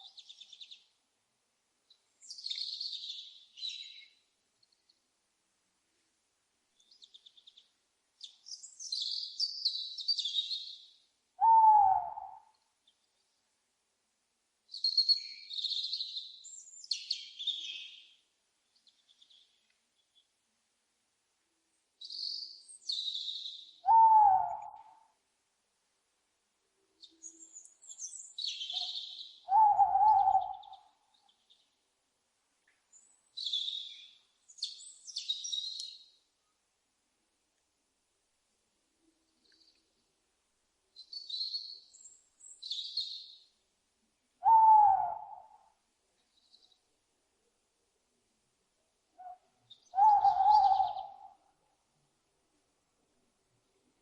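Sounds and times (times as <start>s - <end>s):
owl hoot: 11.4s - 12.5s, 23.8s - 25.0s, 28.7s - 30.9s, 44.4s - 45.7s, 49.2s - 51.4s
faint high ticking calls: 32.6s - 36.6s, 49.1s - 51.7s.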